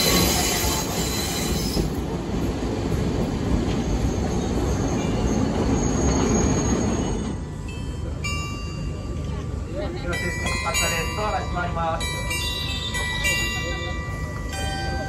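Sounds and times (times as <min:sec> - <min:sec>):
high wheel squeal: 0:00.0 - 0:02.0, 0:03.8 - 0:07.4
train wheels rumbling on track: 0:00.0 - 0:15.0.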